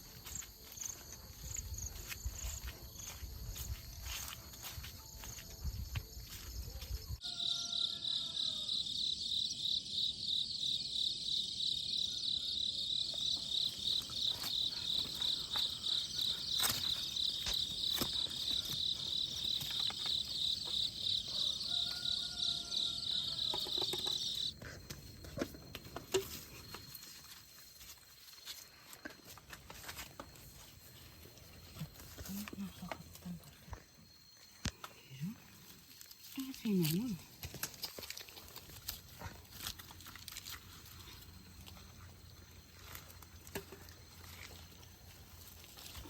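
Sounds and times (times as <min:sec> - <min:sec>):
insect chirring: 0:07.2 - 0:24.6.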